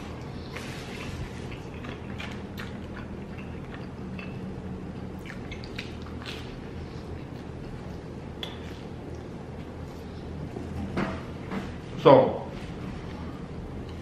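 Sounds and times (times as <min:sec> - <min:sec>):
low room hum: 0:00.0 - 0:14.0
wet mouth smacks: 0:05.2 - 0:06.5
person biting and chewing: 0:05.2 - 0:07.6.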